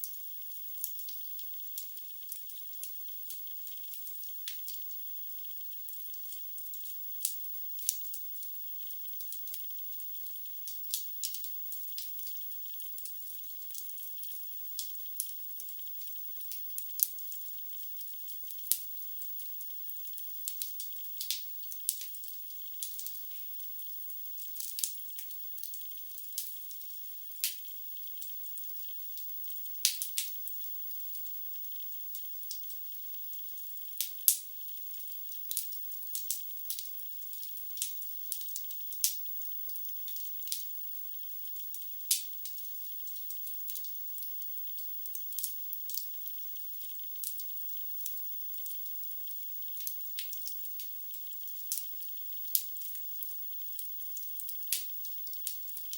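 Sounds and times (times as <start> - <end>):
faint fire hiss: 0.0 - 55.9.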